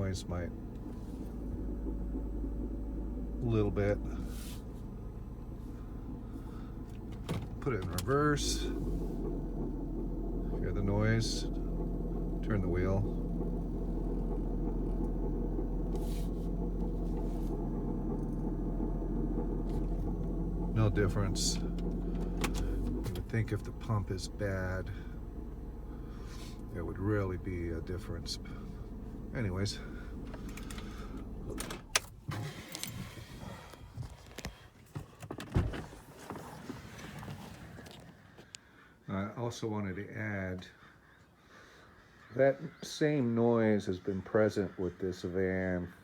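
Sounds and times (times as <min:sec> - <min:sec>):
car engine low growl: 0:00.0 - 0:34.9
power steering hiss: 0:00.7 - 0:12.4, 0:13.1 - 0:33.6.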